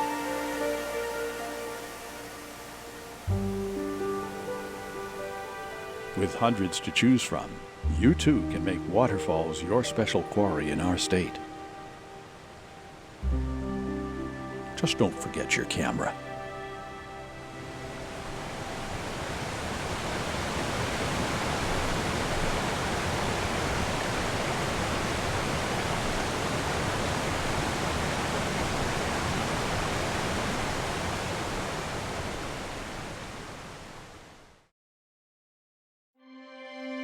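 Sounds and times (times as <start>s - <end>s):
waterfall rushing: 0.0s - 34.2s.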